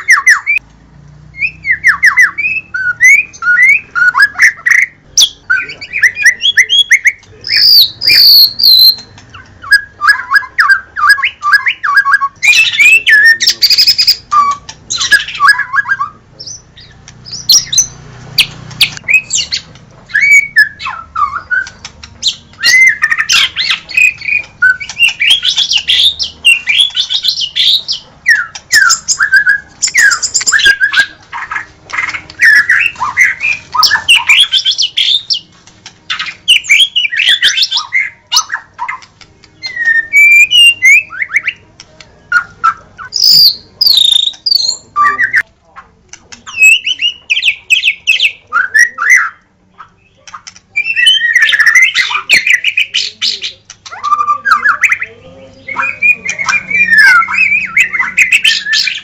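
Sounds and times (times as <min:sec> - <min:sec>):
bird singing whistled phrases: 0:01.3 - 0:35.4, 0:36.1 - 0:41.6, 0:42.3 - 0:45.4, 0:46.5 - 0:59.0.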